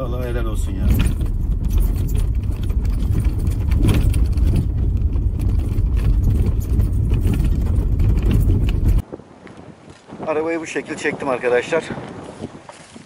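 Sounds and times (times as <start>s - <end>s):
car engine and tyres rumbling: 0.0s - 9.1s
small clicks and rattles: 0.2s - 9.0s.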